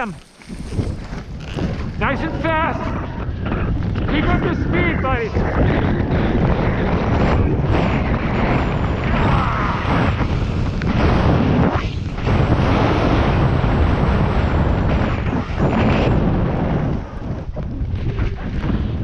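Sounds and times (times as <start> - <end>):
skis running over snow: 0.0 - 13.6
wind buffeting microphone: 0.0 - 19.0.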